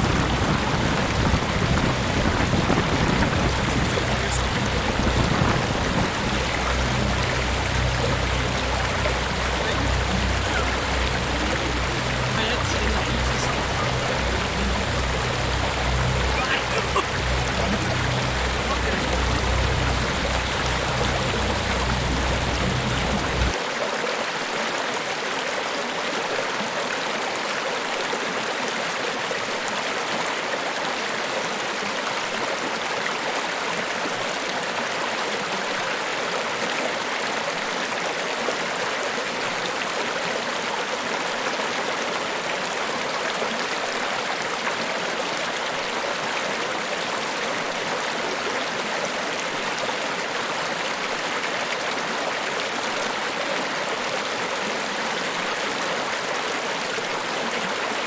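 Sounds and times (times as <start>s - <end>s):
deep rumble: 0.0s - 23.5s
waterfall roaring: 0.0s - 23.6s.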